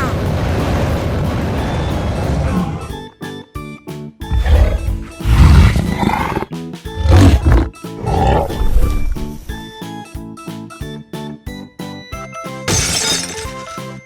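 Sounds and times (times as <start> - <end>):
playful background music: 0.0 - 14.0
cartoon gorilla roaring: 4.3 - 8.9.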